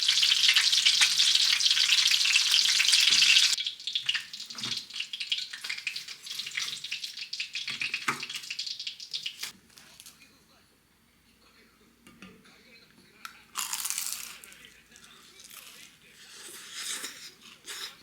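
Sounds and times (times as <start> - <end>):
hissing crackling sizzle: 0.0 - 9.6.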